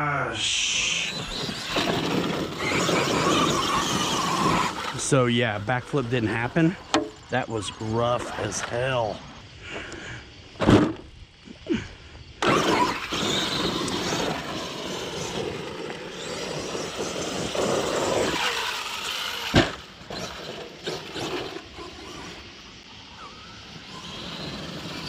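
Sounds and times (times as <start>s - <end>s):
rc truck motor and tyre noise: 0.6s - 25.0s
thump: 10.6s - 11.0s, 19.5s - 19.8s.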